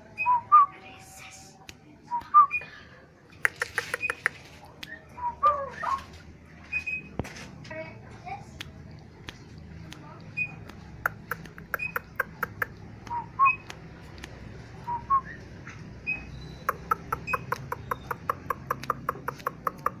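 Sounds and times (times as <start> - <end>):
bird sharp clicks: 3.3 - 5.0, 8.6 - 14.4, 16.1 - 20.0.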